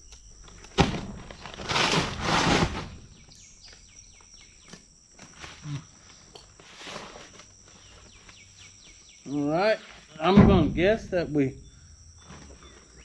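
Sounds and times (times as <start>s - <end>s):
loud rustling handling noise: 0.8s - 3.2s.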